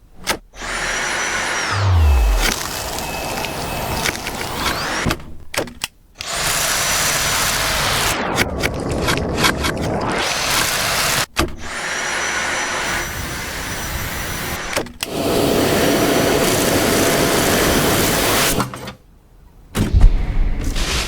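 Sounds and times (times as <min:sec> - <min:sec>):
cordless vacuum running: 0:00.6 - 0:05.2, 0:11.8 - 0:18.5.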